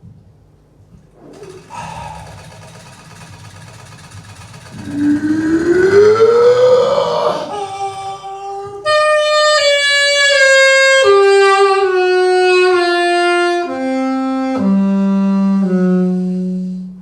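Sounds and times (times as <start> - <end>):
saxophone playing long notes: 4.9 - 17.0.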